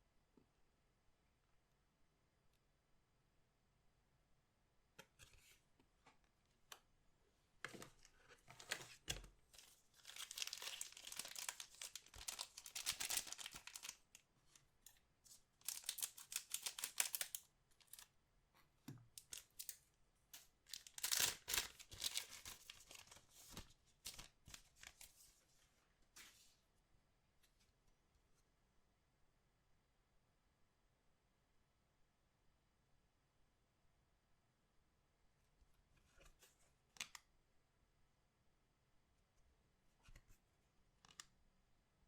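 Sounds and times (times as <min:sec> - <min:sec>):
foil wrappers crinkling: 0:09.6 - 0:14.1, 0:15.6 - 0:18.0, 0:20.7 - 0:25.1.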